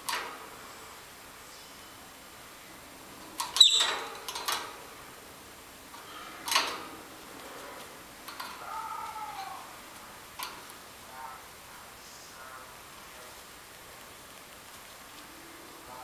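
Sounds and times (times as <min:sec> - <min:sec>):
lovebirds chirping: 0:00.8 - 0:02.9, 0:03.6 - 0:04.1.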